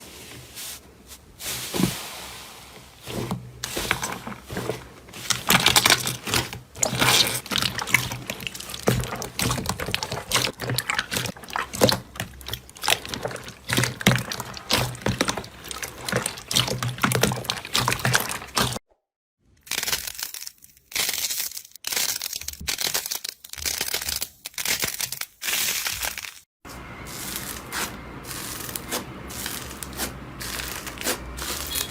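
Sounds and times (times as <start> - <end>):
slime squished by hand: 3.1 - 18.8, 27.3 - 31.9.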